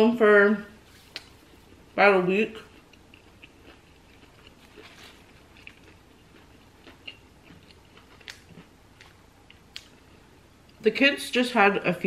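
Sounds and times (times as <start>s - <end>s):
person chewing food: 2.6s - 10.8s.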